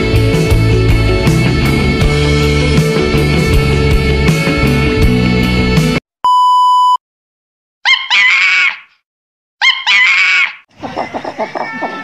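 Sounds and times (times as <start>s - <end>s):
high-pitched test tone beep: 6.2s - 7.0s
animal cry: 7.8s - 9.0s, 9.6s - 12.0s.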